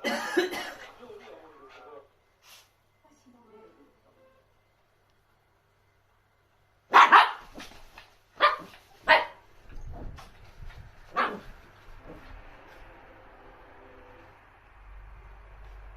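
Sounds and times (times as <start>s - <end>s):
dog barking: 6.9s - 7.7s, 8.4s - 9.5s, 11.1s - 11.5s.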